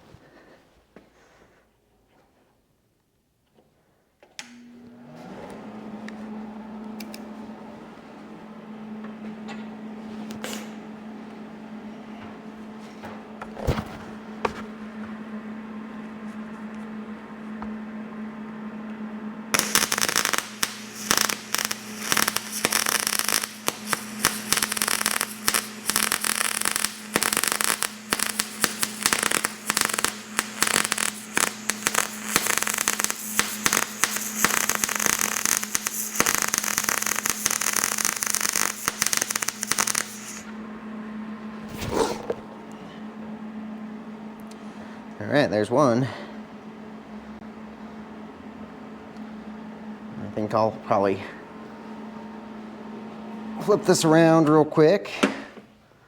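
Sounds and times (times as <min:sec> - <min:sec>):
steady hum: 0:05.7 - 0:54.8
welding arc crackling: 0:10.3 - 0:10.8, 0:19.5 - 0:40.5.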